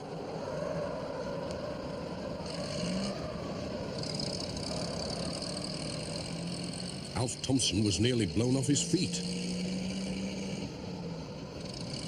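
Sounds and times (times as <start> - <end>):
van engine running: 2.5 - 12.0.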